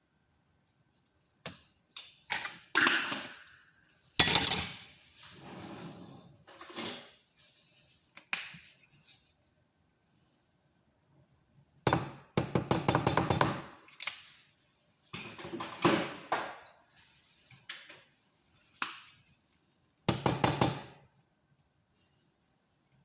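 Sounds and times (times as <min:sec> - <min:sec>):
kitchenware knocking and clinking: 0:04.2 - 0:04.8.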